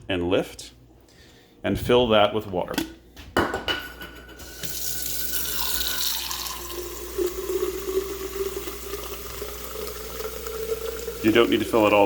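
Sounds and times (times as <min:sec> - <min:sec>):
tap water running into tank: 0:04.4 - 0:12.0.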